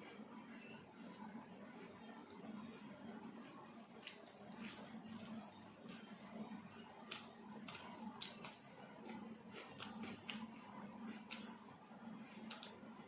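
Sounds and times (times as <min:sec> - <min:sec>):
chewing and lip smacking: 0:07.1 - 0:11.6, 0:12.3 - 0:12.8.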